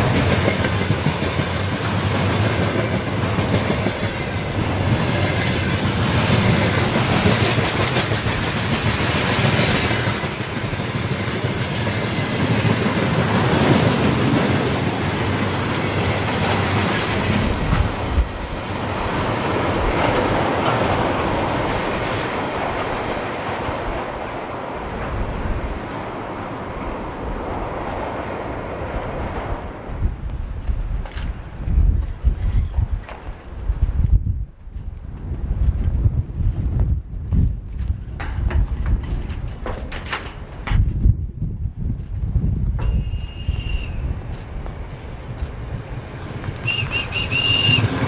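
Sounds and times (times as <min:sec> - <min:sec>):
train wheels clattering on rails: 0:00.0 - 0:26.5, 0:35.2 - 0:41.2, 0:42.0 - 0:48.0.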